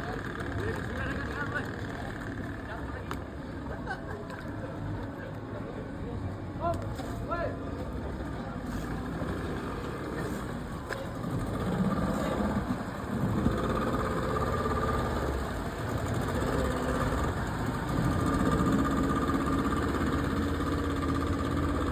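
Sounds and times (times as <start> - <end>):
speedboat engine running: 7.9 - 21.9.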